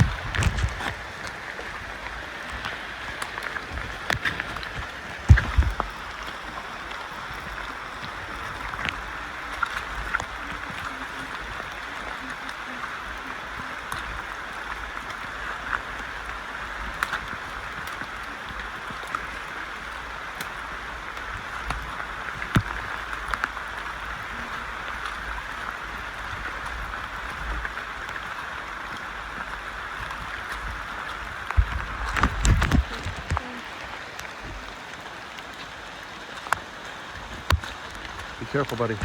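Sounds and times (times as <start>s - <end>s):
knocks and low thumps: 0.0s - 1.0s, 5.2s - 6.0s
rainforest hiss: 0.0s - 39.0s.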